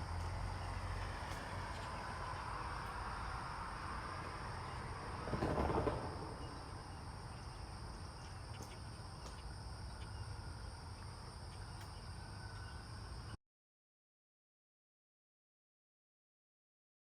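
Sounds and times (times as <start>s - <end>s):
insects droning: 0.0s - 13.4s.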